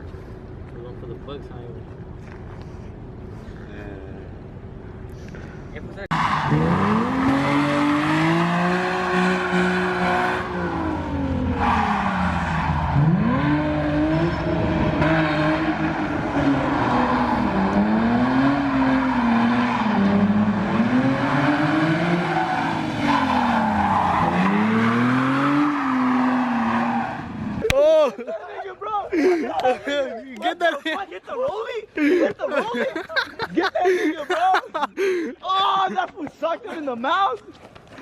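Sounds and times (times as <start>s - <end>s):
car engine revving: 6.1s - 27.6s.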